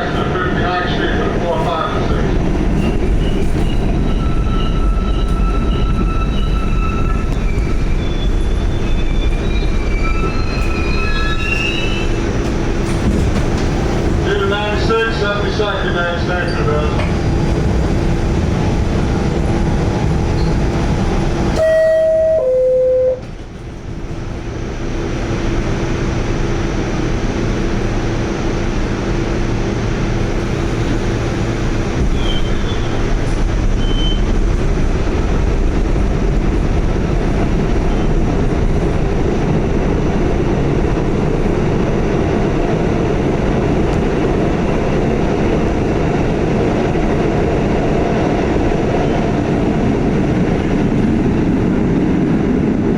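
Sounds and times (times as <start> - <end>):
subway car running rumble: 0.0 - 52.9
two-note descending door chime: 21.6 - 23.2.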